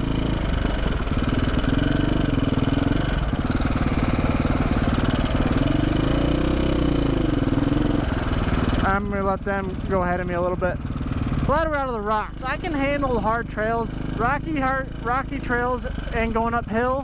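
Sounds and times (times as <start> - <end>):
engine valve ticking: 0.0 - 8.9, 9.6 - 11.9
motorcycle engine at low revs: 0.0 - 17.0.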